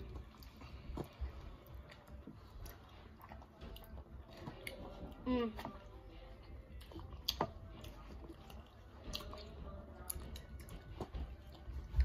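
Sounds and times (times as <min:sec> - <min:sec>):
children chewing snacks: 0:00.0 - 0:12.0.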